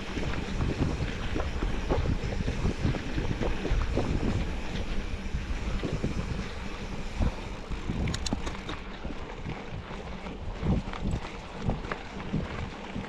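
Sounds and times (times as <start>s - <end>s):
vehicle rumble: 0.0s - 13.0s
wind buffeting microphone: 0.0s - 13.0s
sharp clicks: 8.0s - 8.8s.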